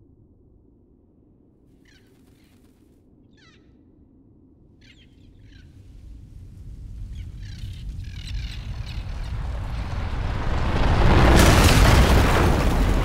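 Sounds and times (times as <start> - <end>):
short bird calls: 1.7 - 3.8
deep rumble: 5.4 - 13.0.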